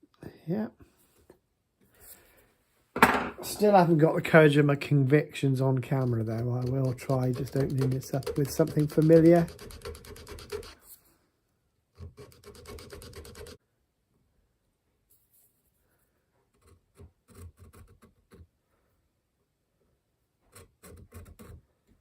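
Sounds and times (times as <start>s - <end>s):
cutter rasping through wood: 5.9s - 10.8s.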